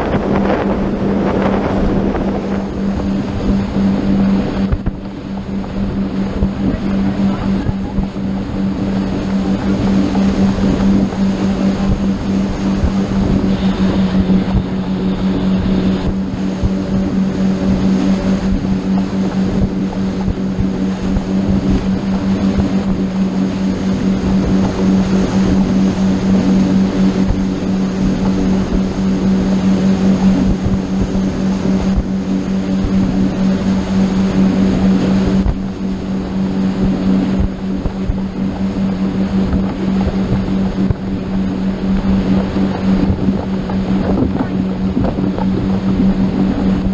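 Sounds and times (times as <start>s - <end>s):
boat engine droning: 0.0s - 46.9s
rushing water: 0.0s - 46.9s
wind: 0.0s - 46.9s.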